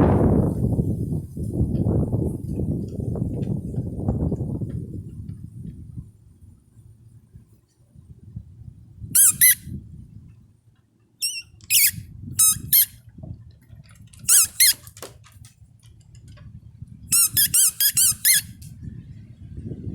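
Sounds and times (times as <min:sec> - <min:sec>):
wind on microphone: 0:00.0 - 0:10.6, 0:11.4 - 0:19.9
huskies yipping: 0:09.2 - 0:09.6, 0:11.2 - 0:12.9.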